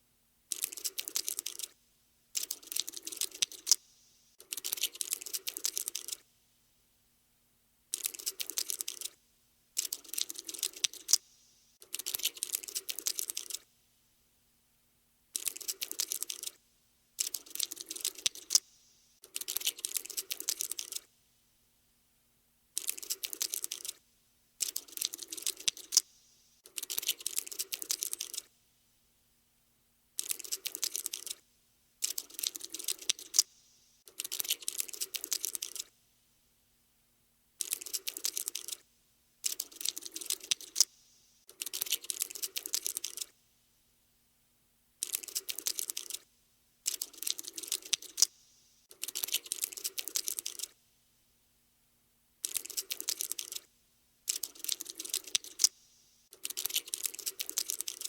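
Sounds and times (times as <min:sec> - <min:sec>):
cockroach scuttling clicks: 0:00.5 - 0:01.8, 0:02.4 - 0:06.2, 0:07.9 - 0:09.2, 0:09.8 - 0:13.6, 0:15.4 - 0:16.6, 0:17.2 - 0:21.1, 0:22.8 - 0:24.0, 0:24.6 - 0:28.5, 0:30.2 - 0:31.4, 0:32.0 - 0:33.5, 0:34.1 - 0:35.9, 0:37.6 - 0:38.8, 0:39.4 - 0:43.3, 0:45.0 - 0:46.2, 0:46.9 - 0:50.7, 0:52.4 - 0:53.7, 0:54.3 - 0:58.0.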